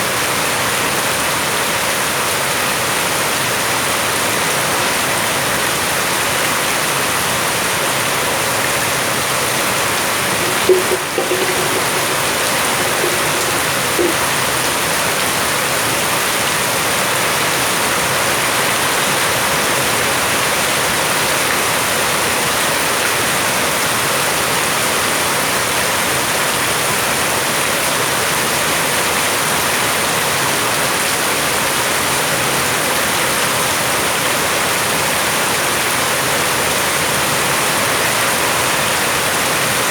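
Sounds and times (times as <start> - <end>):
heavy rain hiss: 9.6 - 16.1
small knock: 10.4 - 14.3.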